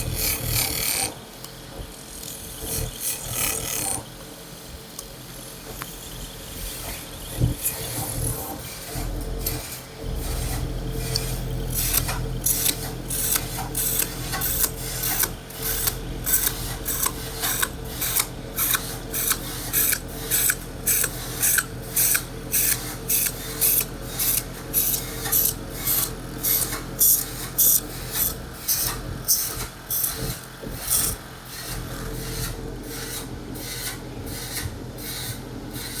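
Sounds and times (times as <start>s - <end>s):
low machine hum: 0.0s - 36.0s
rhythmic rasping strokes: 10.0s - 33.2s.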